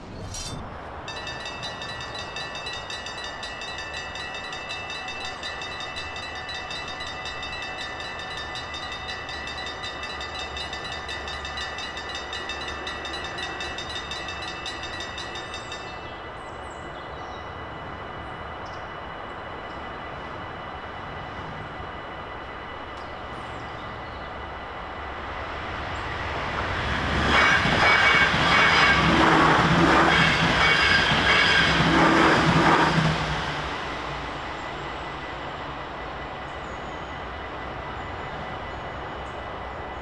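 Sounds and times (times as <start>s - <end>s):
passing train rumble: 0.0s - 40.0s
level crossing bells ringing: 1.1s - 16.1s.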